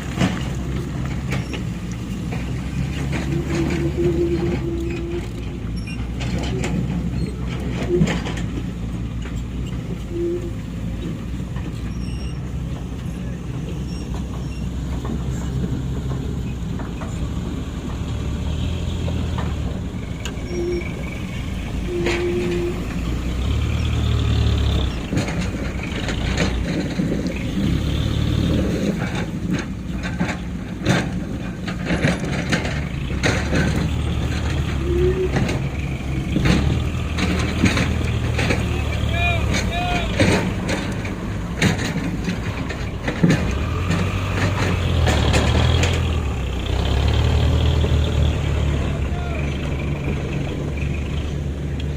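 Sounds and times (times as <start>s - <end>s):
heavy diesel machinery running: 0.0s - 51.9s
excavator bucket raking stones: 19.7s - 47.5s.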